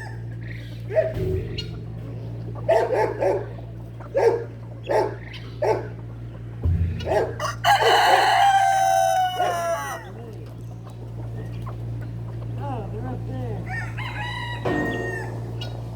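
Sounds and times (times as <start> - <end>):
chickens clucking: 0.0 - 15.9
steady low hum: 0.0 - 15.9
rooster crowing: 7.0 - 10.2, 13.7 - 15.8.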